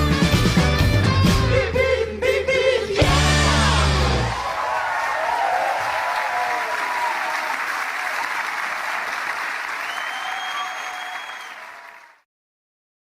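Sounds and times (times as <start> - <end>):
crowd applauding and cheering: 3.1 - 12.2.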